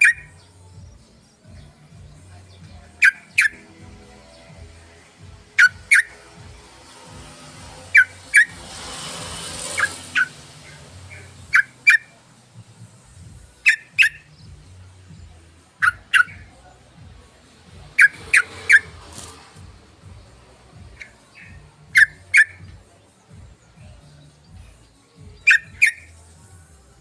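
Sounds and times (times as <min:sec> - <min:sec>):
bird calling upward notes: 0:00.0 - 0:00.4, 0:02.9 - 0:04.5, 0:05.5 - 0:08.7, 0:09.5 - 0:12.1, 0:13.6 - 0:14.3, 0:15.8 - 0:16.5, 0:17.9 - 0:19.0, 0:21.0 - 0:22.7, 0:25.4 - 0:26.2.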